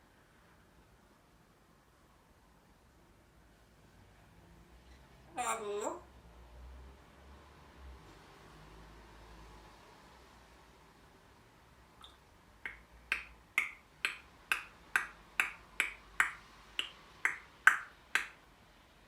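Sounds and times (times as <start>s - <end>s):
parrot clicking: 12.0s - 18.4s.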